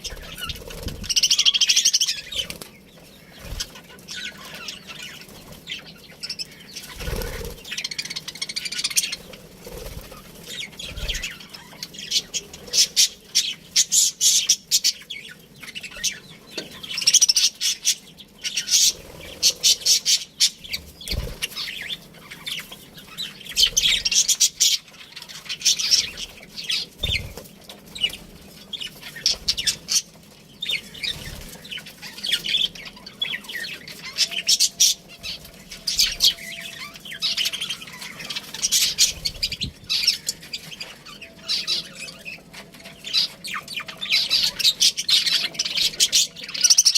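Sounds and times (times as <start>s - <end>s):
budgerigars chirping: 0.0s - 27.4s, 28.0s - 46.9s.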